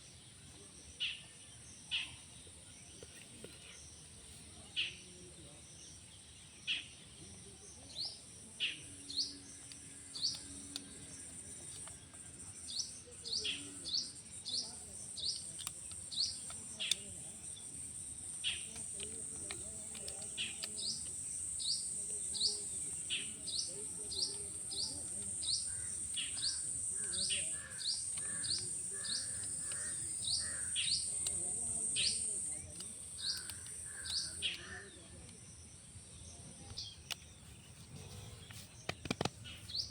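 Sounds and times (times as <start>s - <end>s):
small bird chirping: 0.0s - 35.5s, 36.2s - 39.9s
high-pitched insect drone: 16.9s - 32.6s.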